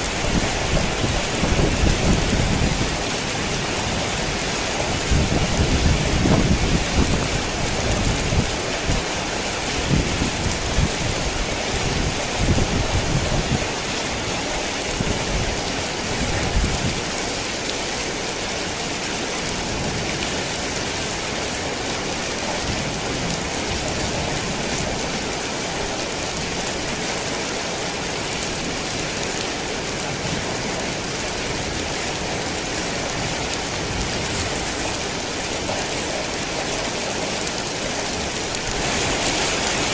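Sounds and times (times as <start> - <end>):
rolling thunder: 0.0 - 3.0
heavy rain: 0.0 - 39.9.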